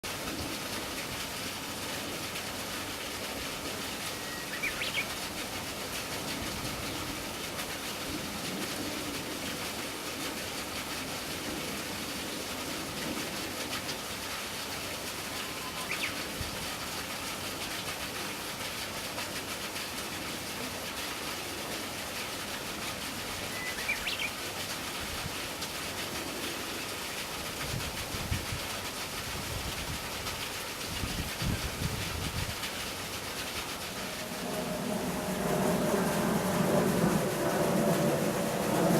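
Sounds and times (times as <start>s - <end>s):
steady outdoor hiss: 0.0s - 38.9s
high bird calls: 4.2s - 5.1s, 15.3s - 16.2s, 23.5s - 24.4s.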